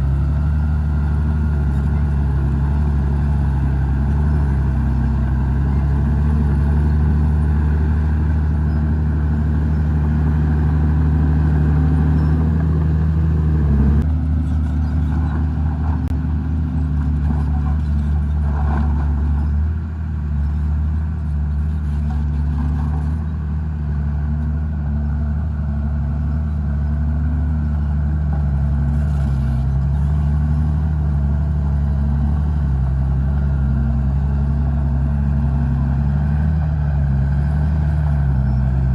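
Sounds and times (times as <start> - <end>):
engine clatter: 0.0 - 23.6
bulldozer diesel engine running: 0.0 - 38.9.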